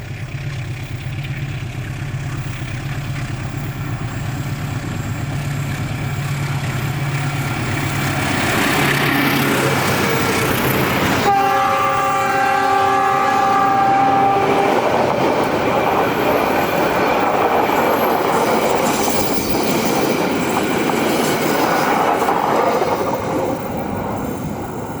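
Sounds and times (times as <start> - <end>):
train wheels clattering on rails: 0.0 - 25.0
locomotive horn chord: 9.1 - 15.2.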